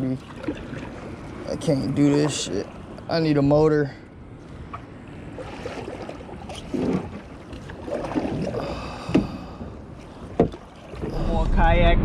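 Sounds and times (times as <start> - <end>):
water sloshing and splashing: 0.0 - 3.5, 4.2 - 11.2
knocks against kayak hull: 9.1 - 9.4, 10.3 - 10.6.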